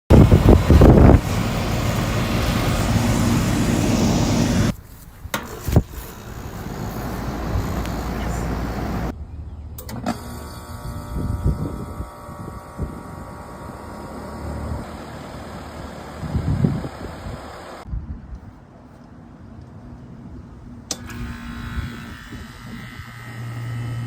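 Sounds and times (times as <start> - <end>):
air conditioner unit running: 0.1 - 4.7, 5.4 - 9.1
steady hum: 0.1 - 9.3.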